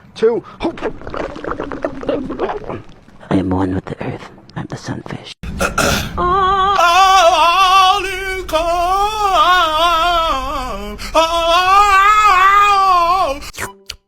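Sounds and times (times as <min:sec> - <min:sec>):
person singing with vibrato: 0:05.5 - 0:13.9.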